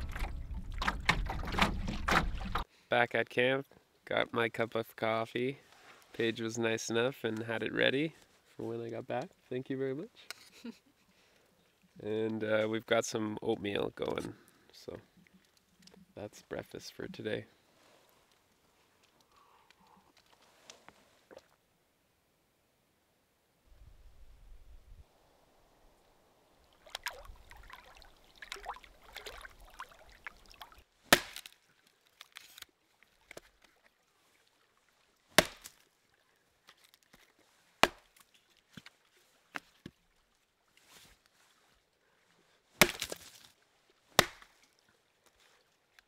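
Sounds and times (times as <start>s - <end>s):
wood handling and rustling: 0.0s - 2.6s
axe chopping firewood: 31.1s - 31.5s, 35.4s - 35.8s, 37.8s - 38.2s, 42.8s - 43.4s, 44.2s - 44.5s.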